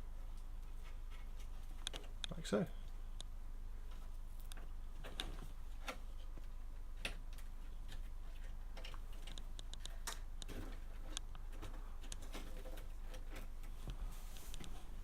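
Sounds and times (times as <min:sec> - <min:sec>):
steady low hum: 0:00.0 - 0:15.0
cables and connectors clicking: 0:01.4 - 0:03.4, 0:04.4 - 0:13.8.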